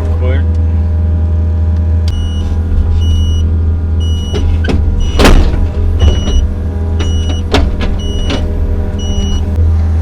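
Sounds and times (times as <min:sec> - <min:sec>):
excavator diesel engine running: 0:00.0 - 0:10.0
high warning beep: 0:02.1 - 0:04.4, 0:06.0 - 0:08.4, 0:09.0 - 0:09.6
loud metal clank: 0:04.4 - 0:06.5.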